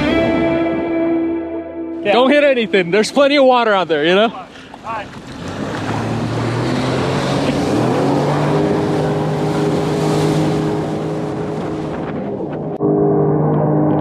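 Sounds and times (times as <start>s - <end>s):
wind: 2.0s - 12.8s
jet ski engine speeding up: 4.0s - 14.0s
water spray rushing: 4.3s - 12.0s.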